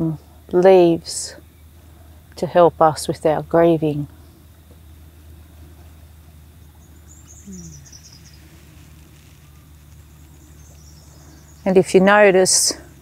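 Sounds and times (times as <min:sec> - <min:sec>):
steady low hum: 0:00.0 - 0:13.0
faint high bird chirps: 0:06.6 - 0:12.7.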